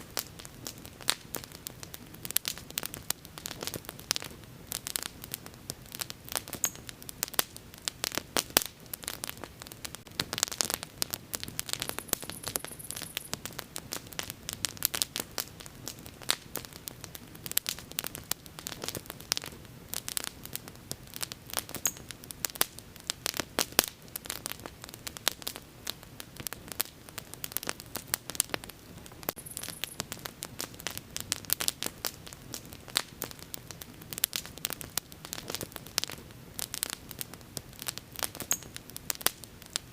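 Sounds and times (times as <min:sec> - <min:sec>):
burning wood crackling: 0:00.0 - 0:39.9
flames rumbling: 0:00.0 - 0:39.9.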